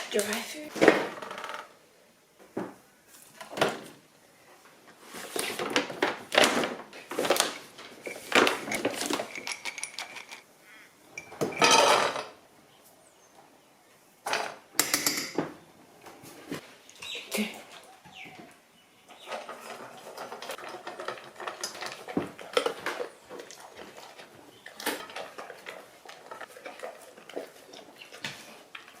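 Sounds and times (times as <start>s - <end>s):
kibble rattling into a bowl: 7.2s - 10.4s.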